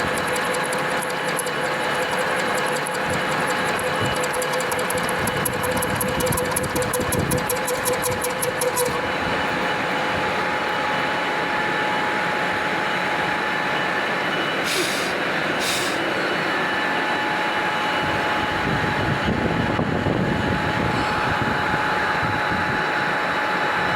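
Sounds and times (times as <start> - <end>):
metal lathe humming and whining: 0.0 - 23.9
brief high hisses: 14.6 - 16.1.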